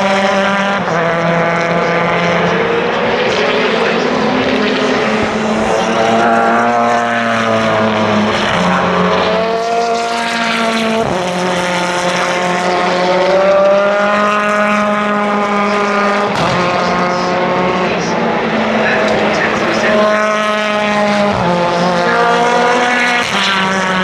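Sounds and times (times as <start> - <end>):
racing cars passing at speed: 0.0 - 24.0.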